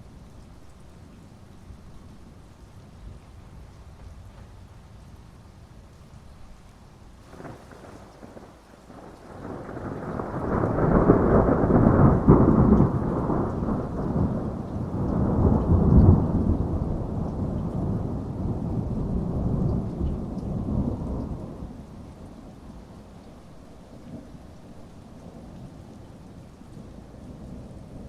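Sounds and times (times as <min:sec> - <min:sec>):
rain falling: 0:00.0 - 0:28.0
thunder rumbling: 0:07.3 - 0:21.9.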